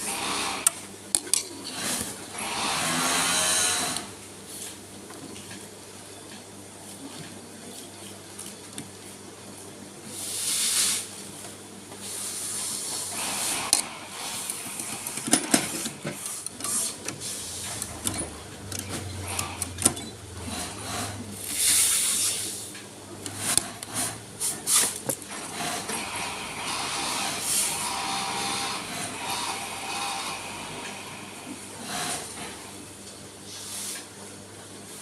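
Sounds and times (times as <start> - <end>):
sewing machine parts clicking: 13.1 - 21.7.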